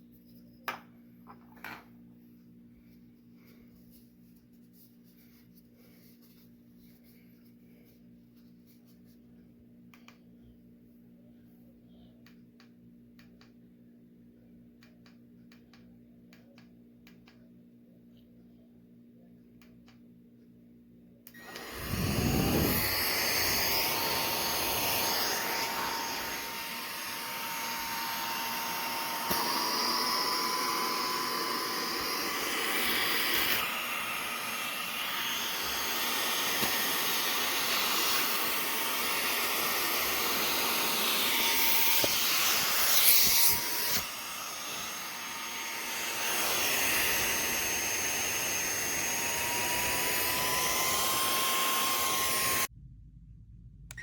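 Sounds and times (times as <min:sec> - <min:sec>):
handheld vacuum motor whine: 0:21.3 - 0:52.7
rush of air: 0:21.6 - 0:23.7.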